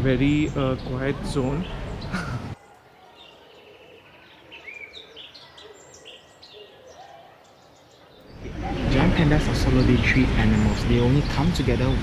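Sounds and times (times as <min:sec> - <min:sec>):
low background hush: 0:08.3 - 0:12.0.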